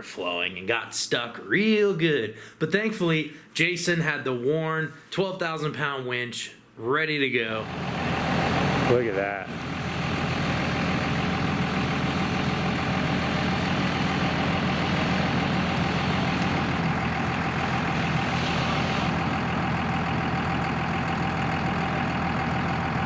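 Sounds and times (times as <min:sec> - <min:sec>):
truck engine idling: 0:07.6 - 0:23.0.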